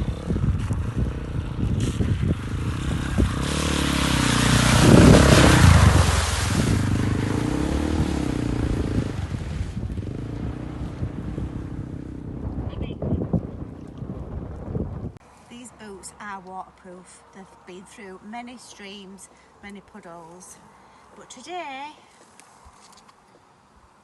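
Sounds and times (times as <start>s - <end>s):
dirt bike engine revving: 0.0s - 12.5s.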